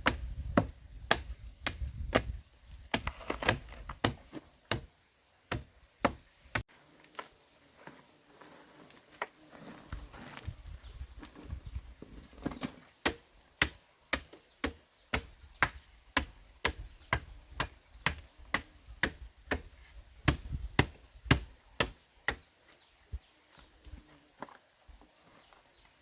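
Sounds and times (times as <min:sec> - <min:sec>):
hand tool striking bamboo: 0:00.0 - 0:04.9, 0:05.5 - 0:06.6, 0:13.0 - 0:22.4.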